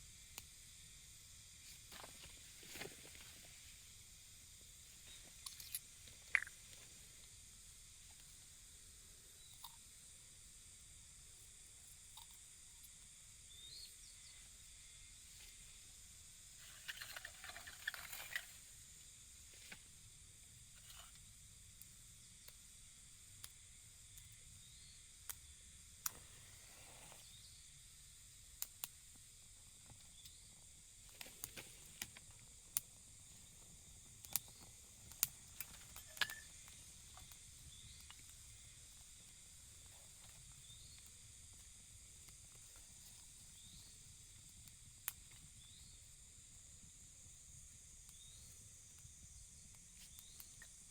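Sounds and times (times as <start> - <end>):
faint high-pitched hiss: 0.0 - 50.9.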